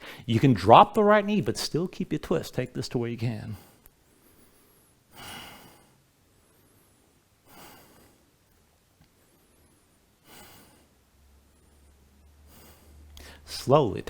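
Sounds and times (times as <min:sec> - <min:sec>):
person breathing: 0:00.0 - 0:00.3, 0:03.5 - 0:08.3, 0:09.2 - 0:13.5.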